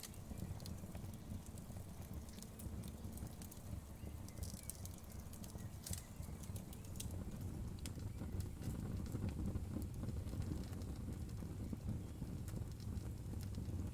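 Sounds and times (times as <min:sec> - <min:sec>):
wood fire crackling: 0:00.0 - 0:13.9.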